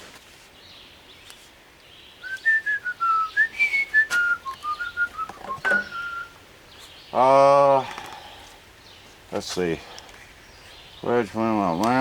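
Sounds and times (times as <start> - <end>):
man whistling: 2.2 - 6.4.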